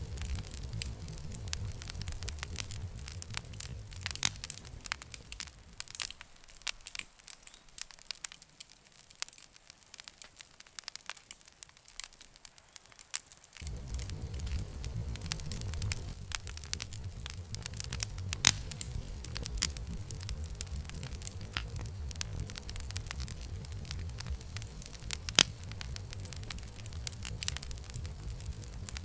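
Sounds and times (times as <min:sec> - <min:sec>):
low rumble: 0:00.0 - 0:05.9, 0:13.6 - 0:29.0
campfire crackling and popping: 0:00.0 - 0:29.0.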